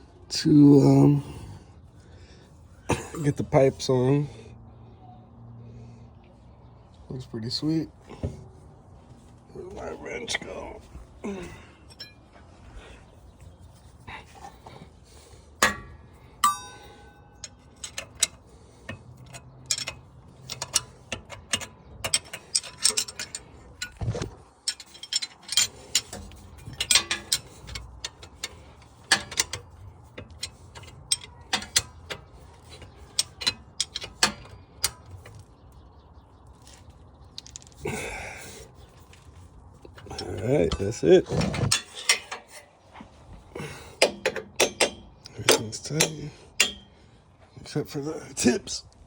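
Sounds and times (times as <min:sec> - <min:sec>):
metal clink: 0:11.9 - 0:12.2, 0:15.6 - 0:24.0, 0:24.6 - 0:35.4, 0:43.6 - 0:47.0
ratchet wrench clicking: 0:16.4 - 0:24.0, 0:24.6 - 0:35.2.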